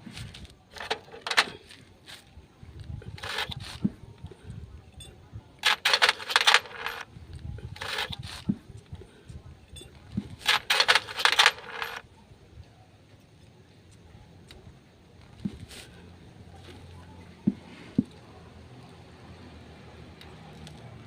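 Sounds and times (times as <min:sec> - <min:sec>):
metal tools clinking: 0:00.7 - 0:01.6, 0:05.6 - 0:07.1, 0:10.4 - 0:12.0.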